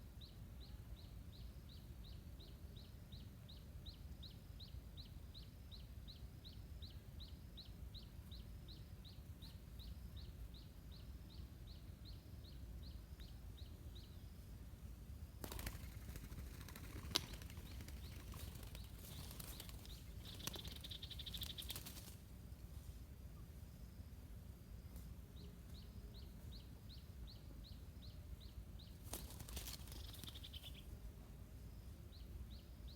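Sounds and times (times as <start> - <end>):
rustling and fluttering: 15.4 - 22.3, 29.0 - 30.9
faint rapid high chirping: 15.4 - 22.4, 28.8 - 31.1.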